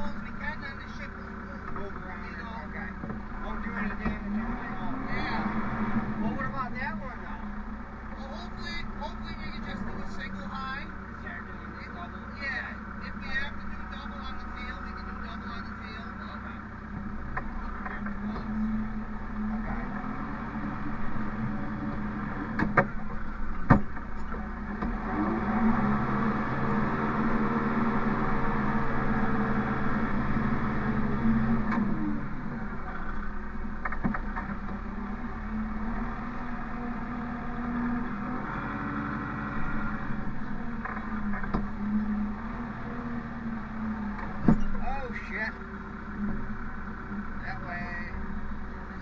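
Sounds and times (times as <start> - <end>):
diesel engine revving: 0.0 - 49.0
sharp knocks: 22.5 - 24.1.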